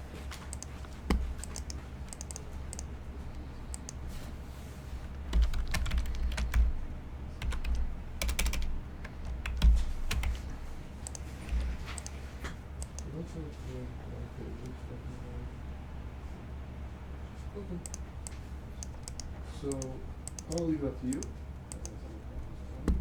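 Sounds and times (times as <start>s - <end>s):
sharp clicks and taps: 0.4s - 2.9s, 7.4s - 12.2s.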